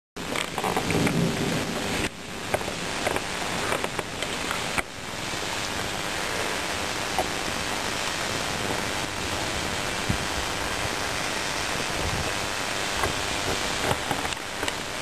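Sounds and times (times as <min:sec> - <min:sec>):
heavy rain: 0:00.2 - 0:15.0
sharp raindrop hits: 0:00.2 - 0:15.0
low thunder rumble: 0:00.8 - 0:03.6.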